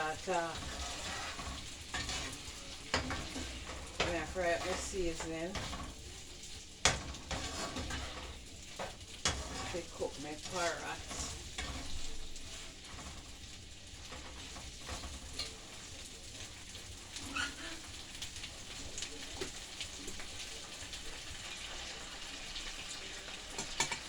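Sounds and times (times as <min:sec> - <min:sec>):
ginger sizzling as it fries: 0:00.0 - 0:24.0
stirring taps and scrapes: 0:00.0 - 0:24.0.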